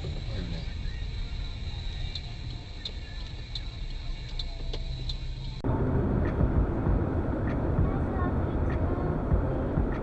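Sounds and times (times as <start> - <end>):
engine and road rumble: 0.0 - 10.0
road noise: 0.0 - 10.0
turn signal ticking: 0.0 - 10.0.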